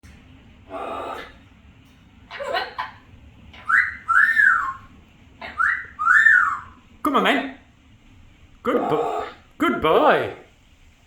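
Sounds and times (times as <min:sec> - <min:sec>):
parrot whistling: 0:02.3 - 0:06.9
short parrot calls: 0:03.6 - 0:06.8.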